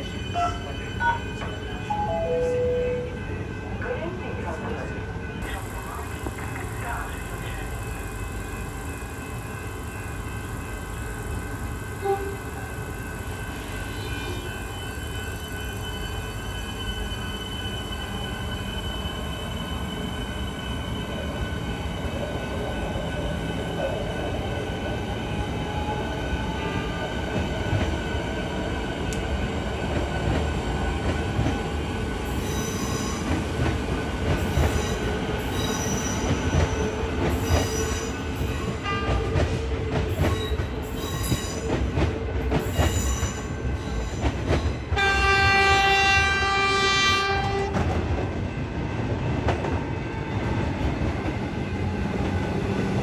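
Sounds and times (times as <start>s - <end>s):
train rumbling through station: 0.0s - 53.0s
train horn: 12.0s - 12.6s, 45.0s - 47.8s.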